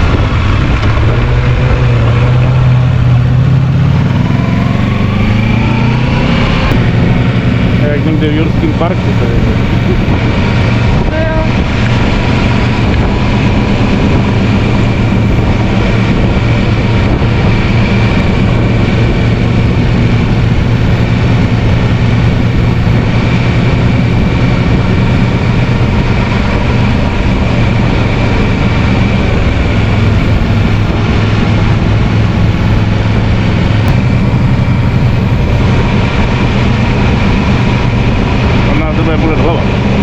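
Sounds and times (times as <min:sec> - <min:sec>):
motorcycle engine running: 0:00.0 - 0:40.0
road and wind noise: 0:00.0 - 0:40.0.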